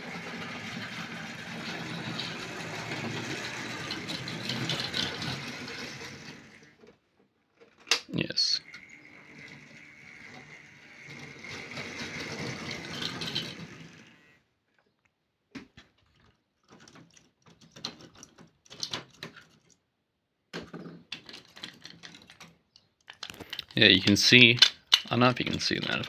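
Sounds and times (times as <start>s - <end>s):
model locomotive motor whine: 0.0s - 6.8s, 8.4s - 14.4s
light clicks of model cars handled: 21.1s - 25.7s.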